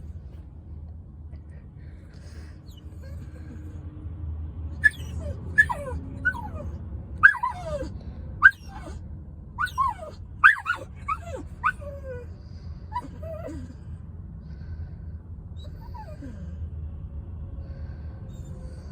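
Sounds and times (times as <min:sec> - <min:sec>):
dog whimpering and yipping: 0:04.8 - 0:09.0, 0:09.6 - 0:12.3, 0:12.9 - 0:13.8, 0:15.6 - 0:16.4.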